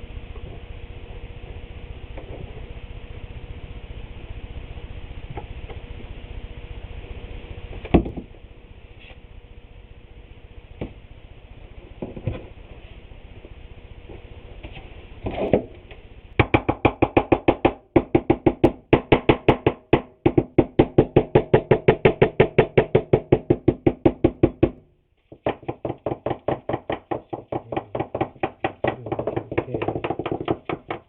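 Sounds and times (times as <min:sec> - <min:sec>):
rapid regular knocking: 0:16.4 - 0:31.0.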